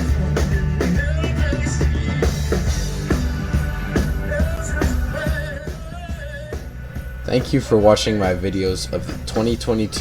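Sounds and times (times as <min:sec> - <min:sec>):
person singing: 0:00.0 - 0:07.2
drum kit beat: 0:00.0 - 0:10.0
live band over loudspeakers: 0:00.0 - 0:10.0.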